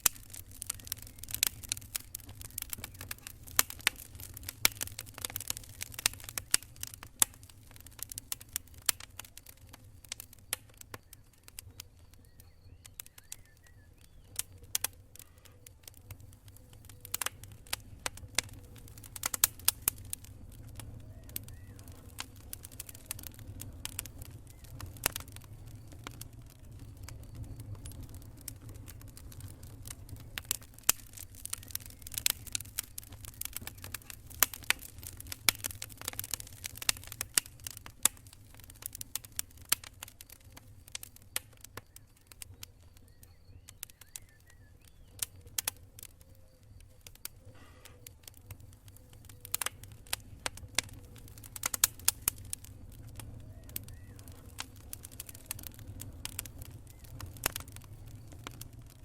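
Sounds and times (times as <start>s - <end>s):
campfire crackling and popping: 0.0s - 59.0s
steady low rumble: 16.2s - 37.0s.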